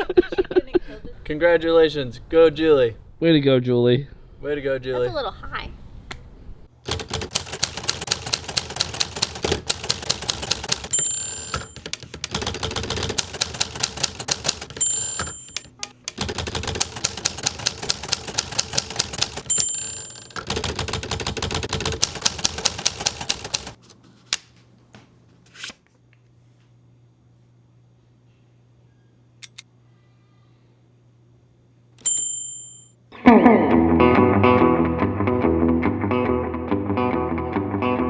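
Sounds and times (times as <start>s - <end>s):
typewriter key strikes: 6.9s - 23.8s, 29.4s - 29.6s
typewriter margin bell dinging: 6.9s - 23.8s, 32.0s - 32.9s.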